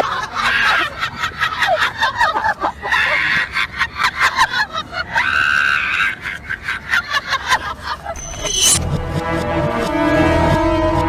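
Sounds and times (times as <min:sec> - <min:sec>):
reversed high-pitched shrieks: 0:08.2 - 0:08.8.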